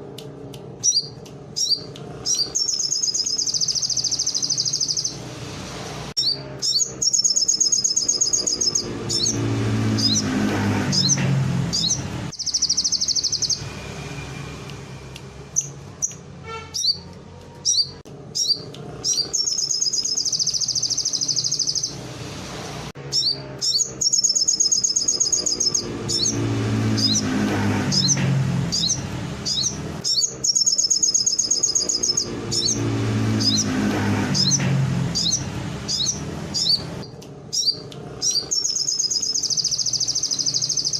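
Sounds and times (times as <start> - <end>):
bird chips: 0.4 - 5.2, 6.2 - 9.4, 10.0 - 13.8, 15.5 - 22.0, 23.1 - 26.4, 27.0 - 40.9
songbird trilling: 0.8 - 5.2, 6.2 - 9.4, 11.0 - 13.7, 16.8 - 22.0, 23.1 - 26.4, 28.0 - 33.7, 35.2 - 40.9.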